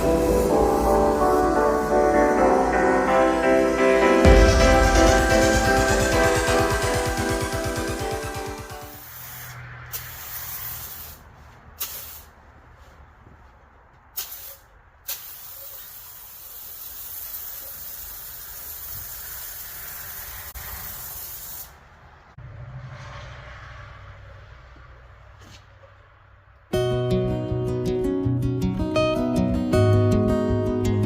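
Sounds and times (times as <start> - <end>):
foam sprayer spraying: 0.0 - 1.9, 8.9 - 11.2, 11.8 - 12.3, 14.2 - 21.8.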